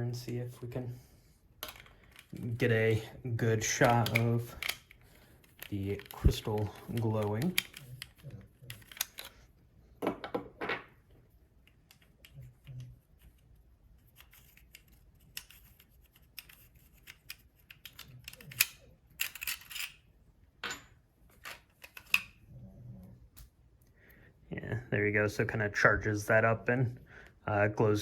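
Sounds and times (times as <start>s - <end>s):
plastic parts clattering: 1.6s - 9.5s, 14.1s - 20.0s
toy lightsaber hilt clicks and taps: 3.7s - 8.2s.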